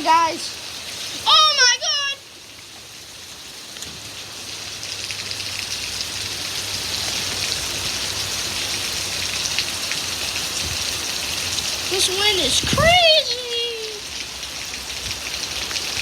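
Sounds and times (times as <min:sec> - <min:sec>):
wind and rain hissing: 0:00.0 - 0:16.0
wind rumble on microphone: 0:10.5 - 0:11.0, 0:12.4 - 0:13.2.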